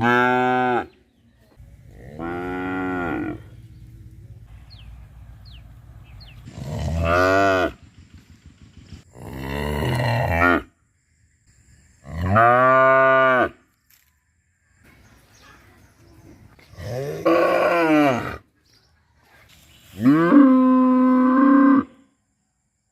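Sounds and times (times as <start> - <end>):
cow mooing: 0.0 - 0.9, 2.0 - 3.5, 6.6 - 7.8.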